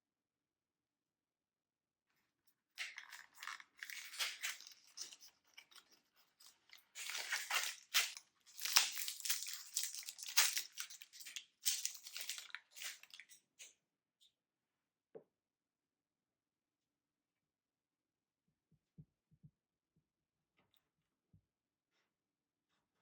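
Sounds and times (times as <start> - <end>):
snack packaging crinkling and tearing: 2.8 - 13.5.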